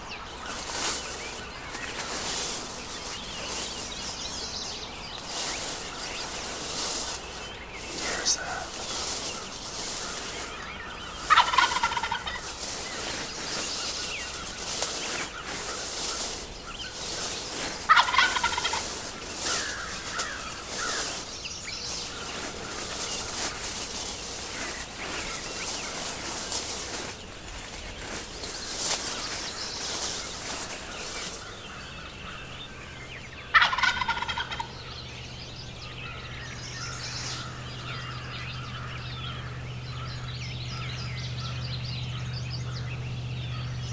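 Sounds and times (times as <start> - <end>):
turkey gobbling: 7.9 - 16.3, 17.8 - 21.2, 33.1 - 35.1.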